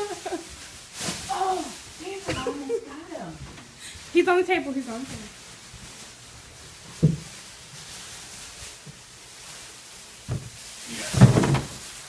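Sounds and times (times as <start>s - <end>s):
dull thumps: 10.3s - 11.8s.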